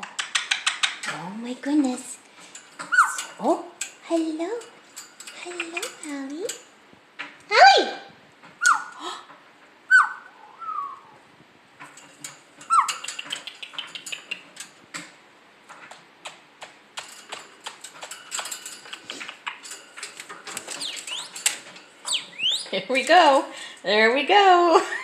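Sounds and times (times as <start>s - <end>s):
parrot clicks and chatter: 0.0s - 1.2s, 2.8s - 6.7s, 12.6s - 14.7s, 16.2s - 23.5s
parrot whistled chirps: 8.6s - 8.9s, 9.9s - 11.2s.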